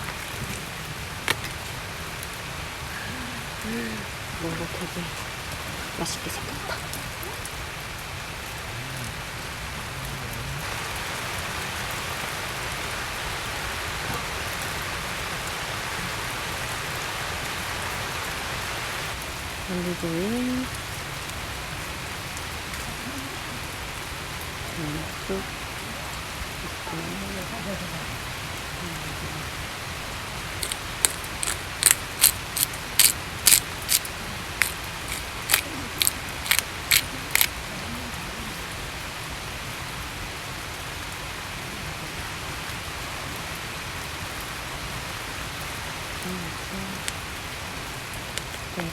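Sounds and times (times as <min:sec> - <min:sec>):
heavy rain pattering: 0:00.0 - 0:48.9
crisp cutting snips: 0:30.6 - 0:37.6.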